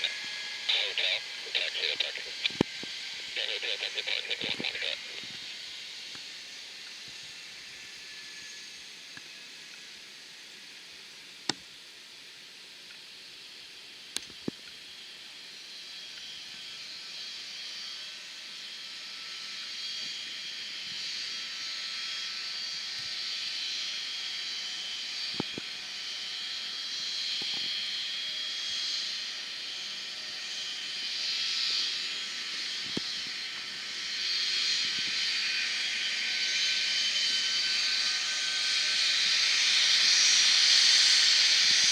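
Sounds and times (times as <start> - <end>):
distant jet engines: 0.0 - 41.9.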